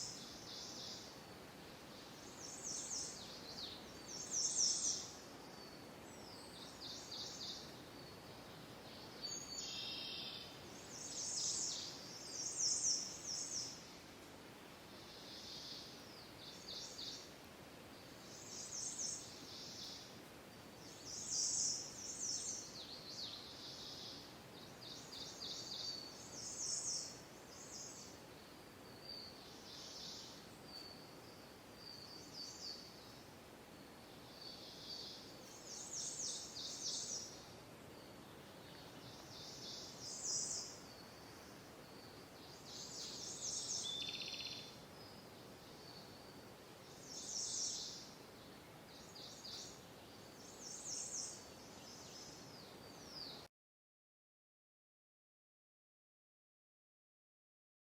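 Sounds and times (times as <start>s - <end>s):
low background hiss: 0.0s - 53.5s
songbirds trilling: 20.8s - 33.4s, 34.0s - 53.4s.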